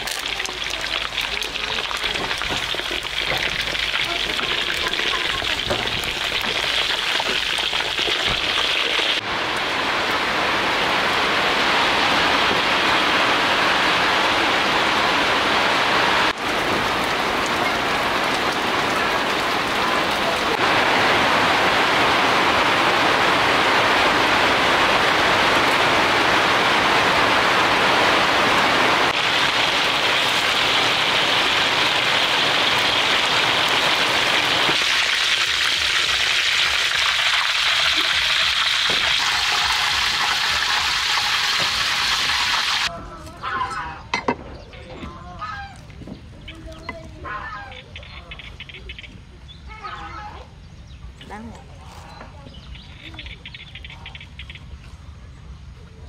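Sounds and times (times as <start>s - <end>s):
food sizzling in hot oil: 0.0s - 9.2s, 28.8s - 42.9s.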